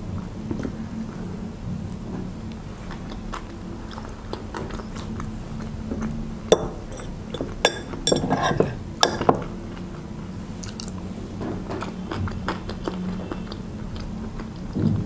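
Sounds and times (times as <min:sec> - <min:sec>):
chewing with wet mouth clicks: 0:02.5 - 0:07.6, 0:10.6 - 0:11.0, 0:11.7 - 0:15.0
metal fork clinking on bowl: 0:06.5 - 0:09.4.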